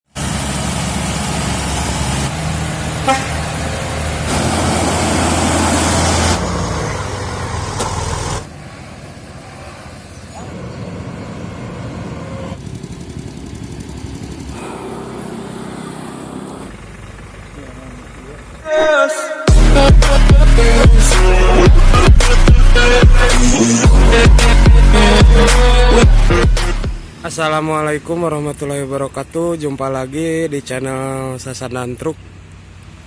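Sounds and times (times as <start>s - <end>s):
road noise: 0.0s - 33.0s
truck diesel engine running: 0.2s - 18.9s, 19.5s - 27.2s
truck horn toot: 3.0s - 3.6s.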